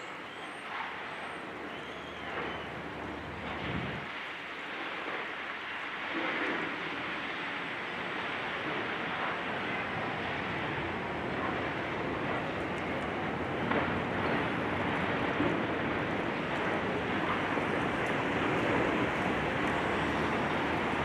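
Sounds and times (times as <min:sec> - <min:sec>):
heavy machinery running: 0:08.6 - 0:21.0.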